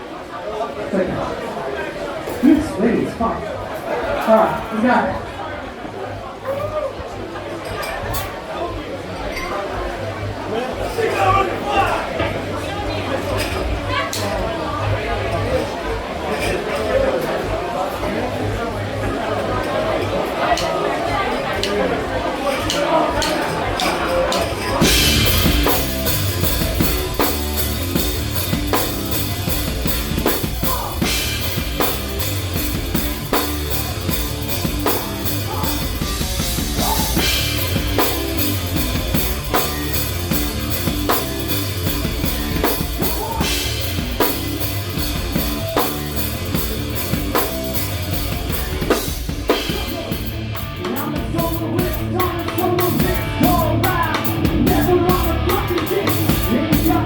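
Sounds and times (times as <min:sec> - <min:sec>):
drum kit: 0:16.8 - 0:57.0
rock band playing: 0:20.5 - 0:57.0
cymbal crash: 0:24.8 - 0:50.8.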